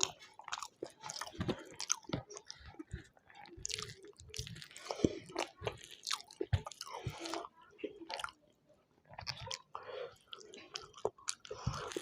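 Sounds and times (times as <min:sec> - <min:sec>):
small food crunches: 0:00.0 - 0:07.4
person chewing and lip-smacking: 0:00.0 - 0:08.4, 0:09.0 - 0:12.0.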